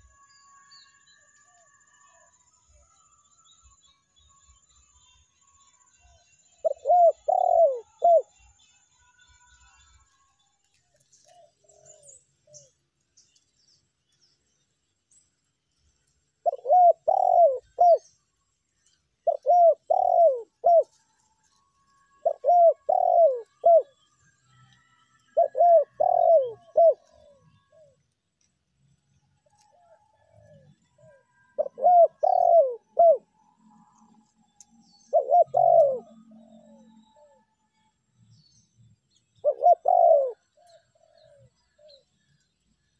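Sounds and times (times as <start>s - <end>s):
dove cooing: 6.6s - 8.3s, 16.4s - 18.1s, 19.2s - 21.0s, 22.2s - 24.0s, 25.3s - 28.0s, 29.7s - 33.3s, 34.9s - 37.4s, 39.4s - 42.0s.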